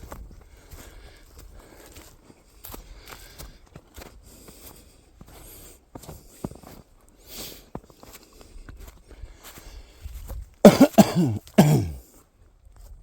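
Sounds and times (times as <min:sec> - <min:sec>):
quiet breaths: 0:00.2 - 0:10.4
man coughing: 0:10.6 - 0:12.0.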